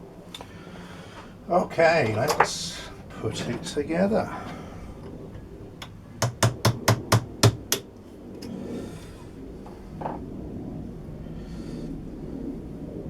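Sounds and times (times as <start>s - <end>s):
hammer tapping: 5.8s - 7.9s.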